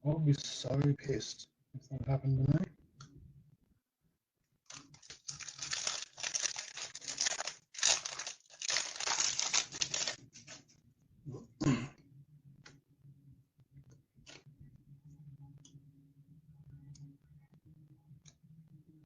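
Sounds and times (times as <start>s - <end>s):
wrapper torn open and crinkled: 4.7s - 10.6s.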